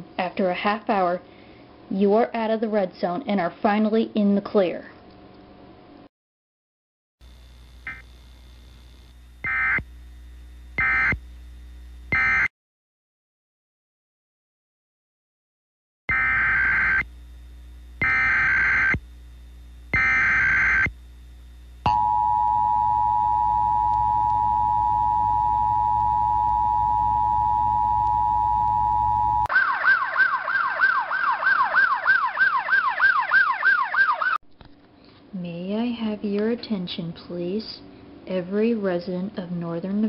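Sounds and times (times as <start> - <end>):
siren wail: 16.1 - 17.0, 21.9 - 34.4
screeching data bursts: 18.0 - 19.0, 20.0 - 20.9
two-note attention signal: 21.9 - 29.5.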